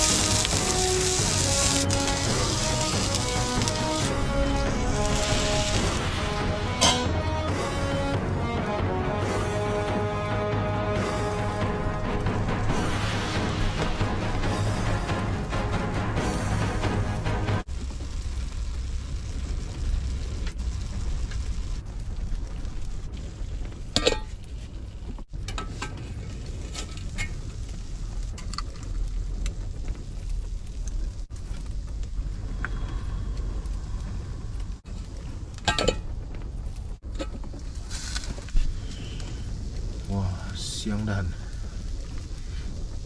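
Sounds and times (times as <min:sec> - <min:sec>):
strong wind rumbling: 0:00.0 - 0:43.0
pots and utensils clinking: 0:06.8 - 0:07.2.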